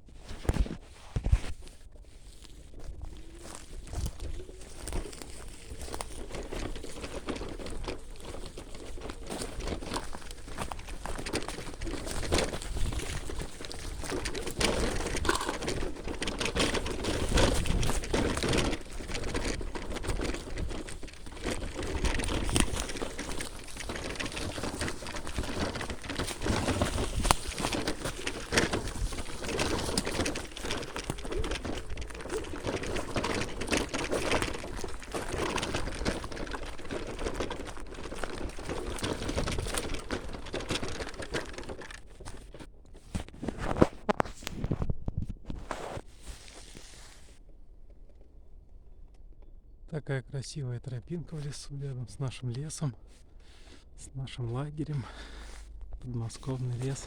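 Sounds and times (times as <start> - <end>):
scooter rattling: 2.2 - 44.5, 54.5 - 57.0.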